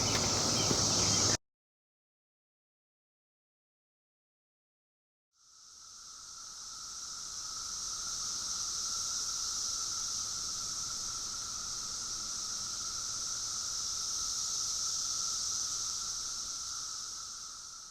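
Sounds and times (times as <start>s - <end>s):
cicadas droning: 0.0s - 1.4s, 5.4s - 17.9s.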